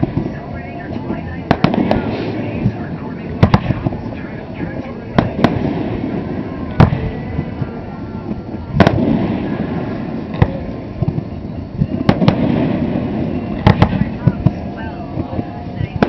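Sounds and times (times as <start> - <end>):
fireworks bursting with bangs: 0.0 - 16.0
fireworks crackle and rumble: 0.0 - 16.0.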